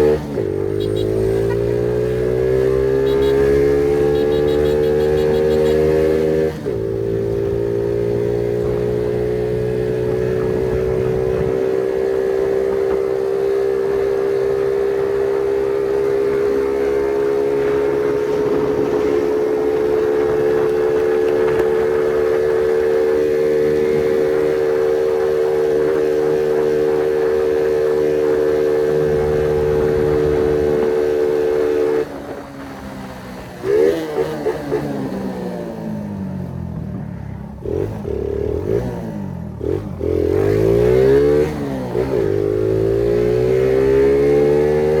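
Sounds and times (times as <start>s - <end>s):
motorcycle engine revving high: 0.0s - 32.9s.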